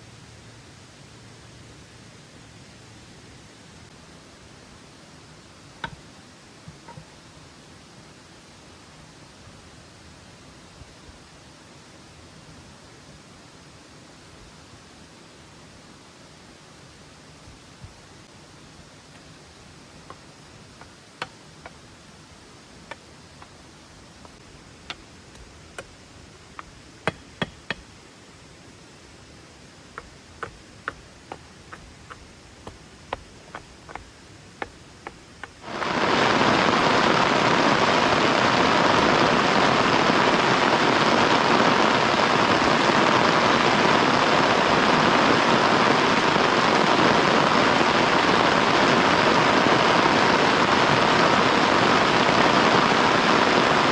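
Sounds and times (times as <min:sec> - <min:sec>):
faint hiss: 0:00.0 - 0:53.9
heavy rain downpour: 0:34.6 - 0:53.9.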